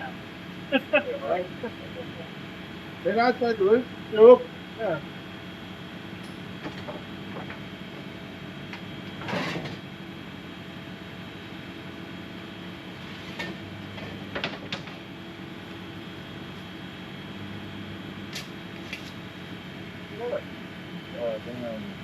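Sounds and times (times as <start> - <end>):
machine humming: 0.0 - 9.2.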